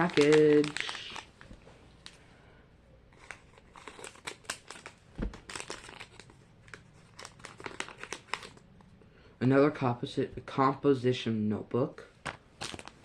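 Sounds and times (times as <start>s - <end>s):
plastic wrapper crinkling and tearing: 0.0s - 2.2s, 3.1s - 8.7s, 12.3s - 13.0s.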